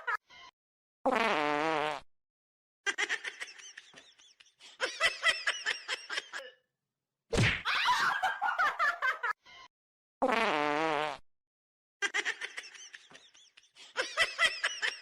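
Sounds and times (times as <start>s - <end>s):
fart-like buzzing tone: 10.2s - 11.2s.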